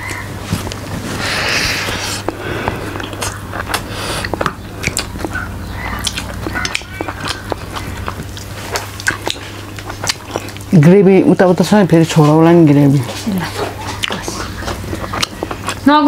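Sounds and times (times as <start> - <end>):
chewing close up: 0.0 - 10.8, 12.1 - 16.0
steady low hum: 0.0 - 16.0
wet mouth clicks and lip smacks: 2.2 - 10.7, 13.8 - 15.8.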